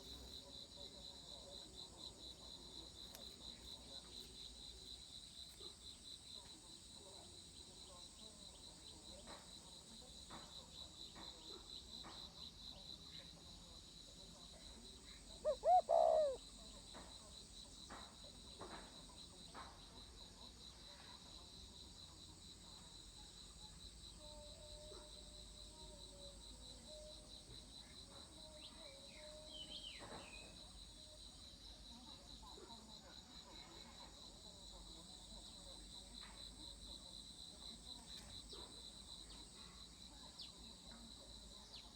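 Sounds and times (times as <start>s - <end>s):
crickets trilling: 0.0s - 20.8s, 21.6s - 41.9s
dove cooing: 15.4s - 16.4s.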